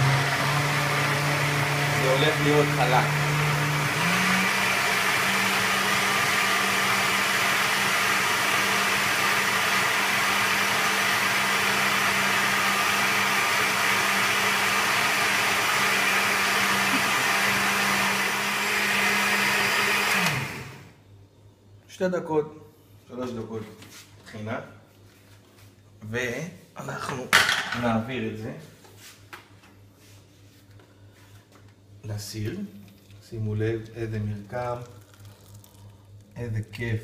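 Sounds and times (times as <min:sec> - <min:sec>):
electric blender running: 0:00.0 - 0:21.0.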